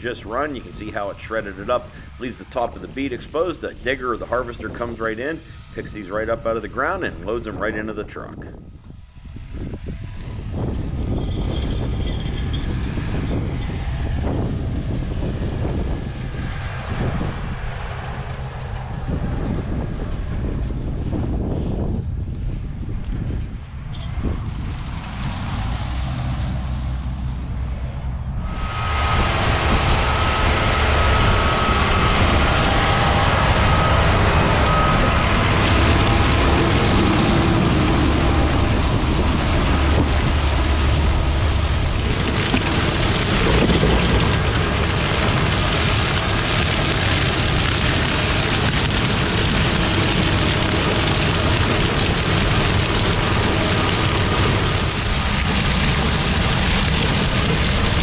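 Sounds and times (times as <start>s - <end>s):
tractor engine drone: 0.0s - 58.0s
harvesting machinery clattering: 31.8s - 58.0s.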